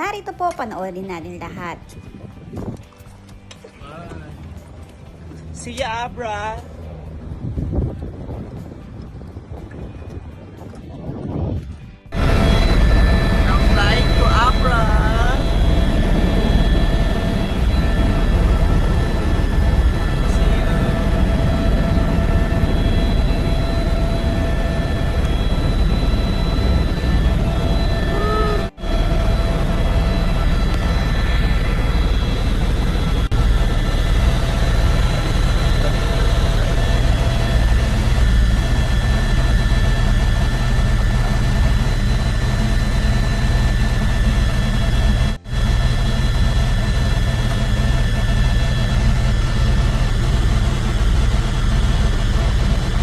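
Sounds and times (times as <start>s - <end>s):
helicopter engine and rotor rumble: 0.0s - 53.0s
high whine: 1.3s - 53.0s.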